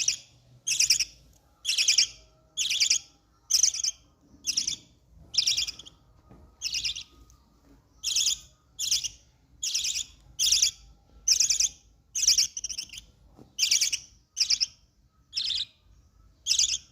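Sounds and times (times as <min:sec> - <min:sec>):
baby parrot squawking: 0:08.1 - 0:14.7, 0:16.5 - 0:16.9.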